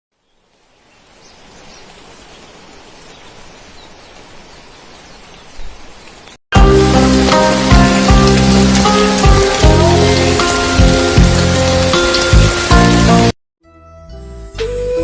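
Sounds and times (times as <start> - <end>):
rain falling: 0.1 - 13.4
loud music: 6.6 - 13.3.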